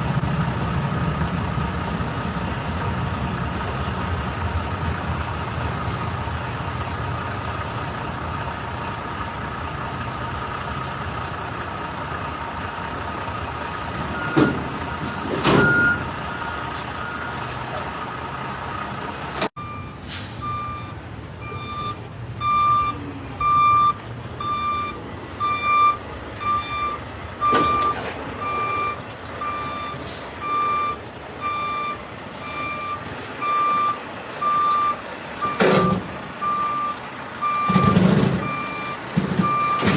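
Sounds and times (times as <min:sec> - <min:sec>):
truck engine running: 0:00.0 - 0:39.9
reverse alarm beeping: 0:15.6 - 0:16.0, 0:19.6 - 0:39.9.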